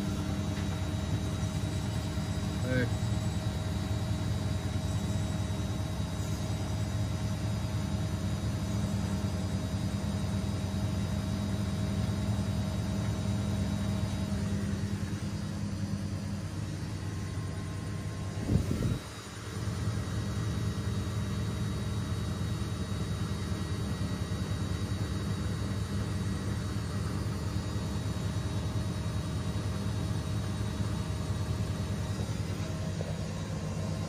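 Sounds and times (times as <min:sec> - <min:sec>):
washing machine drum humming: 0:00.0 - 0:34.0.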